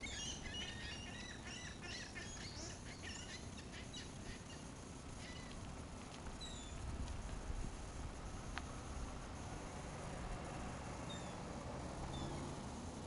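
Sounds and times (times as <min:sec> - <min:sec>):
seagulls calling: 0:00.0 - 0:05.6
steady low rumble: 0:04.1 - 0:12.2.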